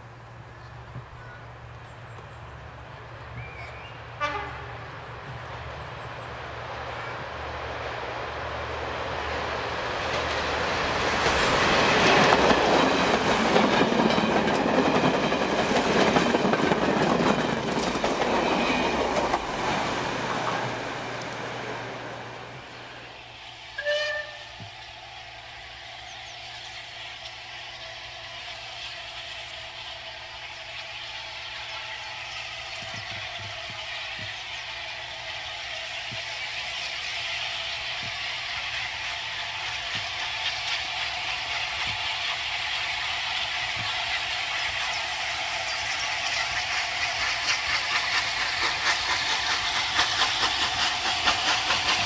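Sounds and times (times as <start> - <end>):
train passing: 0.0 - 52.0
train horn blast: 4.2 - 5.1, 23.7 - 24.6.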